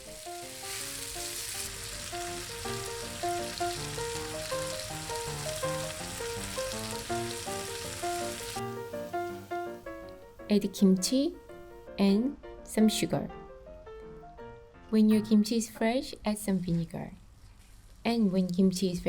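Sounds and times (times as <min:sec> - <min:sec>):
onions sizzling in oil: 0:00.0 - 0:09.9
light background music: 0:00.0 - 0:17.4, 0:18.0 - 0:19.0.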